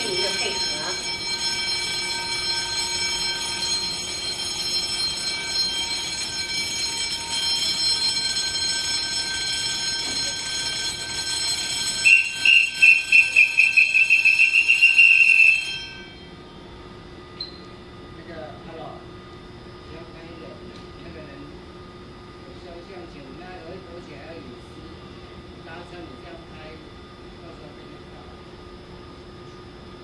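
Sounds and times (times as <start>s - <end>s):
rapid high warning beeps: 0.0s - 16.3s
electric train whine: 0.0s - 24.6s.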